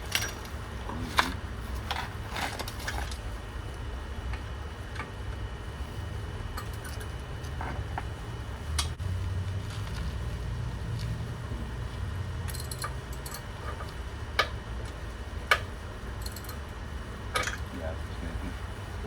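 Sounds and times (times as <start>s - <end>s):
steady low rumble: 0.0s - 19.0s
hand tools clinking on metal: 17.4s - 17.7s.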